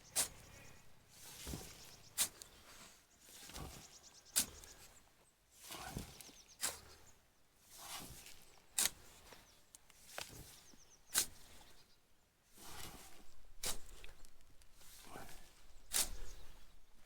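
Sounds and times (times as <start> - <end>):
shovel scraping sand: 0.0 - 4.8, 5.6 - 7.0, 7.7 - 9.3, 12.6 - 14.2, 14.8 - 16.7
sand shuffling: 0.0 - 4.9, 5.6 - 6.9.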